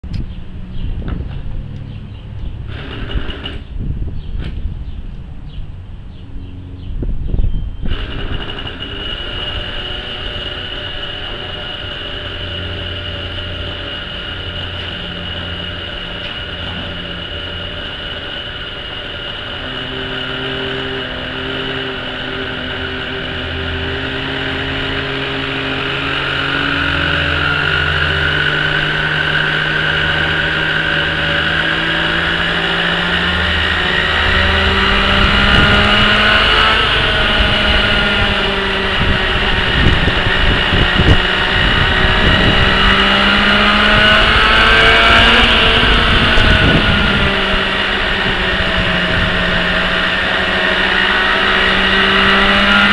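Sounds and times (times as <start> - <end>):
gusty low rumble: 0.0 - 8.4, 33.6 - 50.5
model helicopter engine spooling up: 2.7 - 3.8, 7.8 - 52.9.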